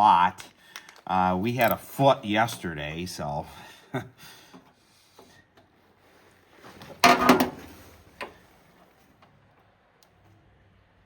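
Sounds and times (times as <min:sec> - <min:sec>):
clattering rattle: 0:07.0 - 0:07.8.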